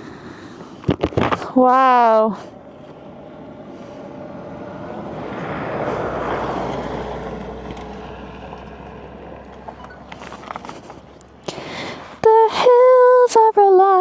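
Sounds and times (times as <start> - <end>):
motorcycle engine running: 1.0 - 12.3
wind rush: 2.4 - 9.8.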